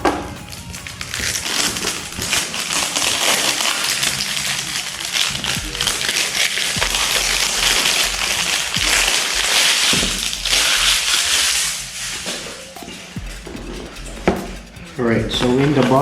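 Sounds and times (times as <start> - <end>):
packaging rustling and scraping: 0.5 - 6.8.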